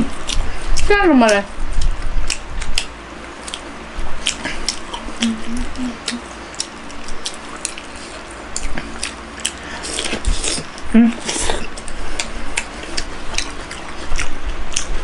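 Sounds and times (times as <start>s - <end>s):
wet chewing clicks: 0.2s - 15.0s
person humming: 5.1s - 6.3s, 10.9s - 11.7s.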